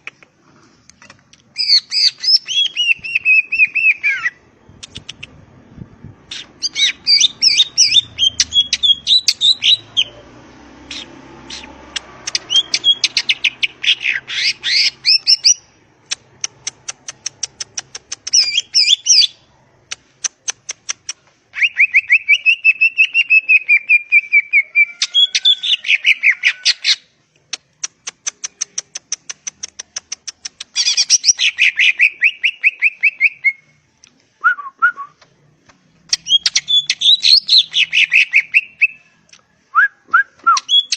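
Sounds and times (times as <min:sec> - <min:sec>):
bird singing trills and whistles: 0:01.6 - 0:04.4, 0:06.3 - 0:10.1, 0:12.3 - 0:15.6, 0:17.8 - 0:19.4, 0:30.6 - 0:33.7, 0:36.1 - 0:39.0, 0:40.4 - 0:40.9.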